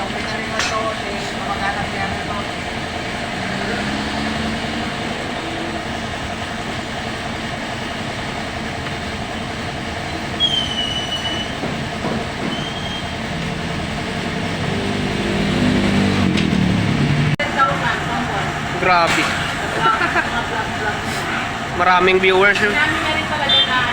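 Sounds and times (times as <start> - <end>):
engine: 0.0 - 23.9
traffic noise: 0.0 - 23.9
short high-pitched squeals: 10.4 - 11.6, 12.5 - 13.2.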